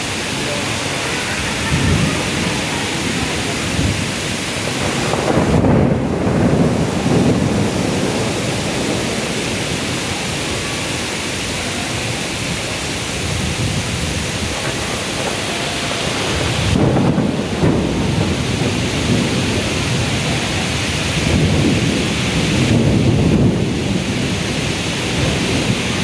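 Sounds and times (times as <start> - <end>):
steady downpour of rain: 0.0 - 26.0
low rumble of thunder: 1.4 - 26.0.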